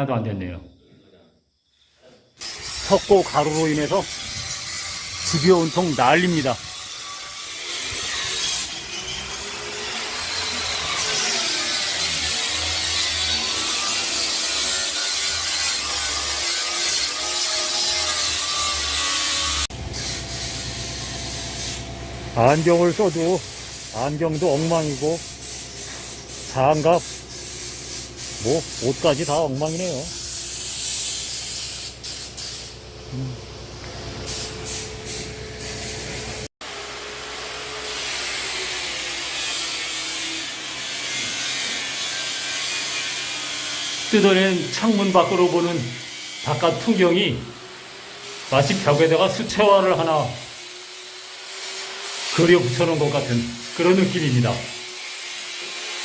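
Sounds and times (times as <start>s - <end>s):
grinder sanding plaster: 2.4s - 32.7s, 34.2s - 56.0s
hissing scrape on plaster: 19.9s - 32.7s, 48.2s - 56.0s.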